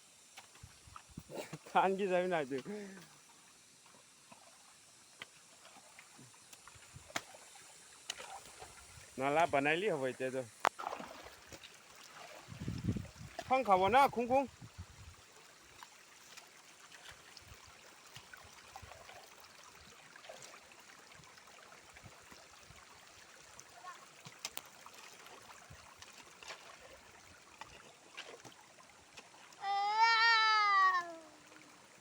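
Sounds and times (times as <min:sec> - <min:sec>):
faint running water: 0:00.0 - 0:32.0
small ticks and clicks: 0:24.2 - 0:24.8
loud high falling cry: 0:29.7 - 0:31.3.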